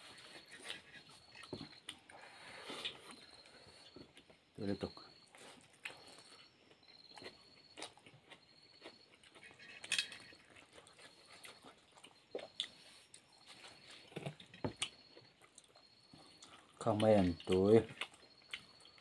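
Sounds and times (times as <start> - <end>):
chewing and mouth smacks: 5.4 - 19.0.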